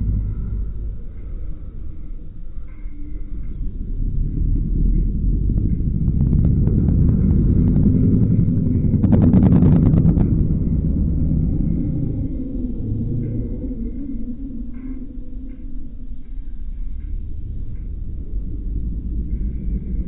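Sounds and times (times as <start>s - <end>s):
car exhaust rumbling: 0.0s - 20.0s
exhaust crackles: 3.7s - 14.0s.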